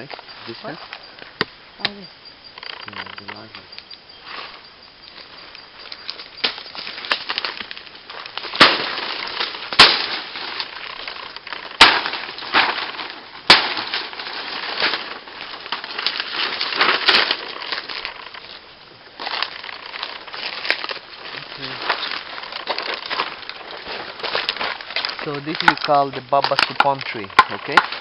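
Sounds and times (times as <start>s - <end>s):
nut cracking under blows: 5.9s - 28.0s.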